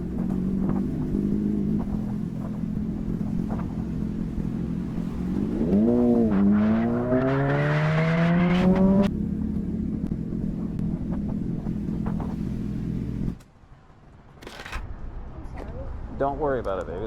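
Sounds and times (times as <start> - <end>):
motorcycle engine accelerating: 0.0 - 13.4.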